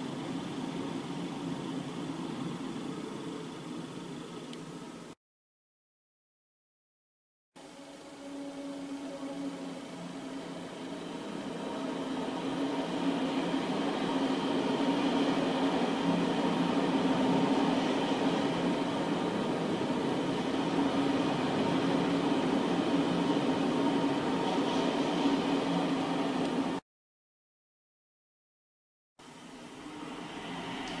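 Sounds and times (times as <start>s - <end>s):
freight train rumbling past: 0.0s - 3.7s, 7.6s - 26.8s, 29.3s - 31.0s
locomotive hum: 0.0s - 5.2s, 7.6s - 26.8s.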